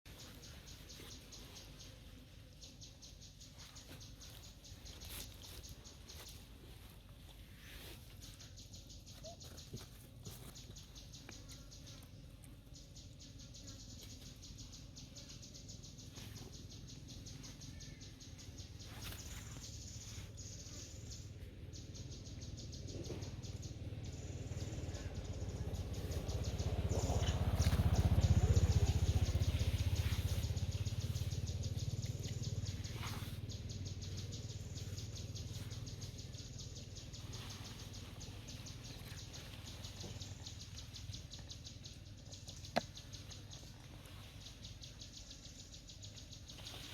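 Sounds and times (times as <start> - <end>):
pulsing insect chorus: 12.7 - 46.9
low rumble: 20.9 - 41.6.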